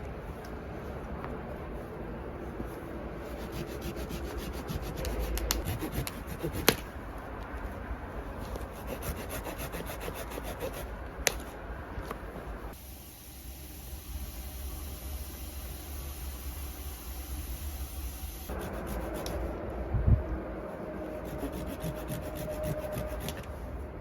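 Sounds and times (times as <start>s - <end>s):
continuous rubbing: 0.2s - 11.6s, 20.6s - 23.7s
steady hiss: 12.7s - 19.3s.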